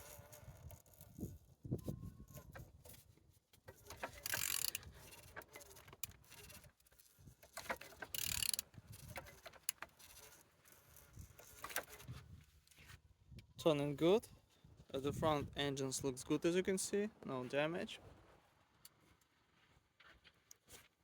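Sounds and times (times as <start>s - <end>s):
mechanical clicking: 4.0s - 4.8s, 8.0s - 10.4s.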